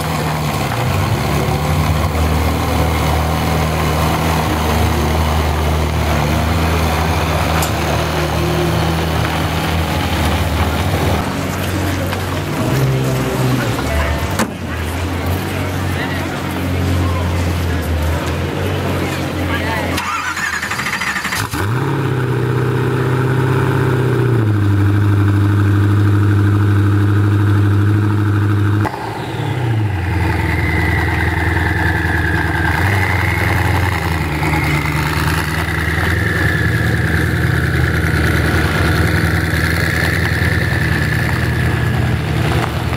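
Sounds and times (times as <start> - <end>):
car engine starting and idling: 0.0 - 42.9
high whine: 28.0 - 42.9.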